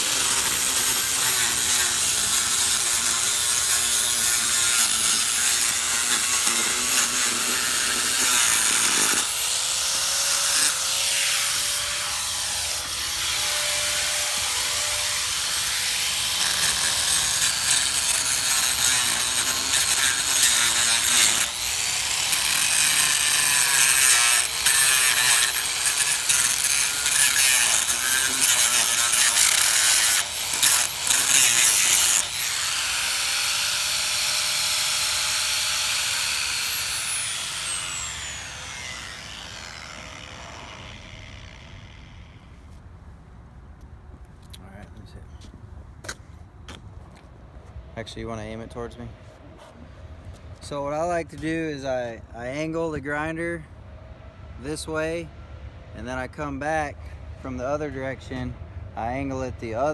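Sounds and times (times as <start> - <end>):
angle grinder cutting concrete: 0.0 - 42.4.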